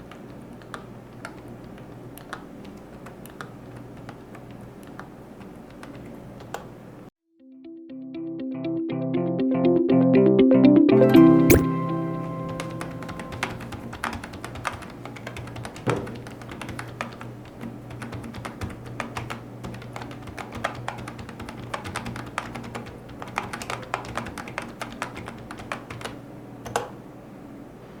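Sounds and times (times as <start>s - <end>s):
keyboard typing: 0.1s - 6.7s, 11.5s - 11.8s, 12.6s - 26.8s.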